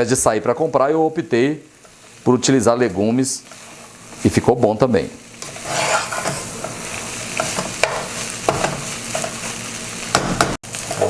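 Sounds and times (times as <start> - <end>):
chicken sizzling in a pan: 0.0 - 11.0
utensil scraping a pan: 5.4 - 9.6.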